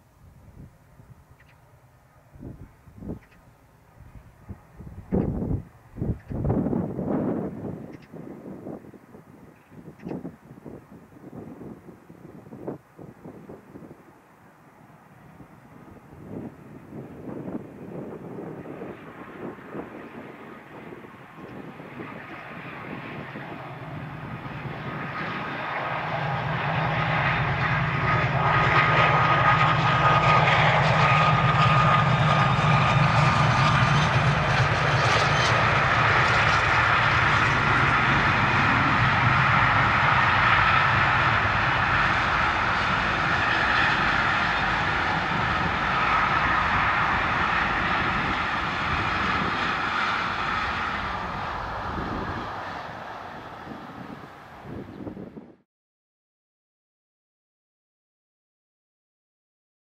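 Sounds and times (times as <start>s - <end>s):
diesel locomotive engines throbbing: 15.0s - 55.4s.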